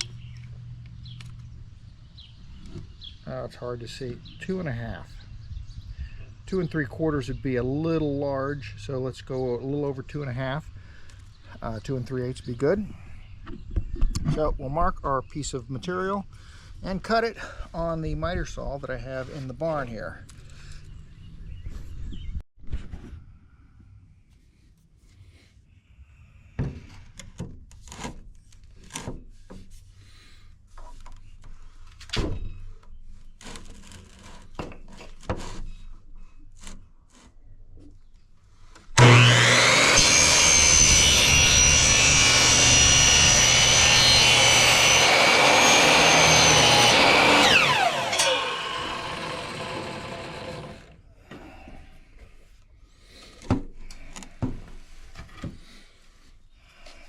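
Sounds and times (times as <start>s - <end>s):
miter saw cutting pipe: 38.9s - 51.0s.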